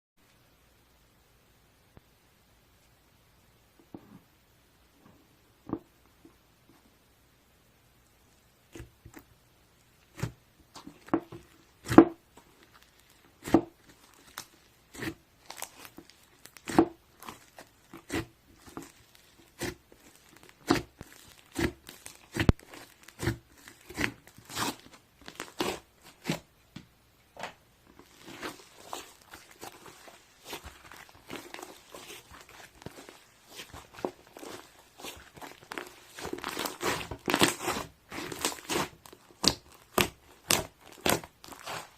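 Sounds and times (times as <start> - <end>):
slime popping and crackling: 10.9 - 26.4, 27.9 - 41.9.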